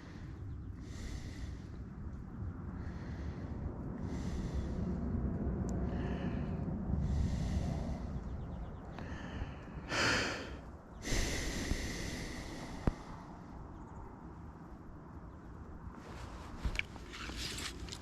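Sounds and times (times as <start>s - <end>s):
person breathing heavily: 0.0s - 13.8s
low rumble: 0.0s - 16.8s.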